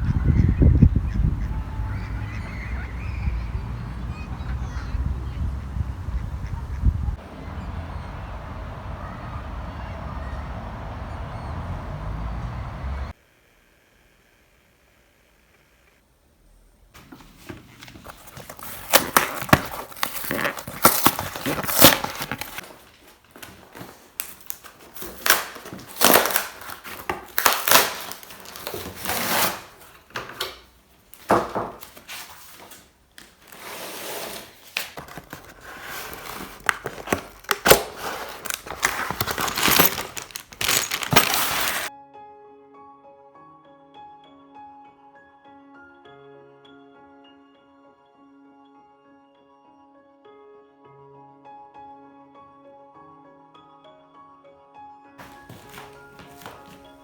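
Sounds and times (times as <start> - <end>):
crinkling: 17.0 - 41.9, 55.2 - 57.0
handling clicks and knocks: 34.8 - 41.9.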